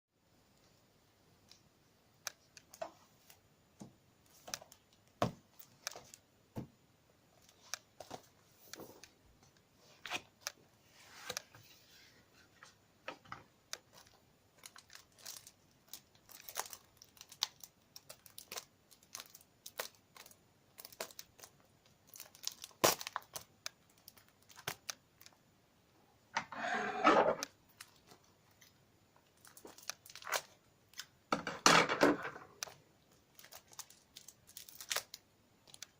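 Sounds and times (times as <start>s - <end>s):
plastic wrap crinkling: 13.8s - 25.4s, 27.4s - 31.1s, 32.3s - 35.9s.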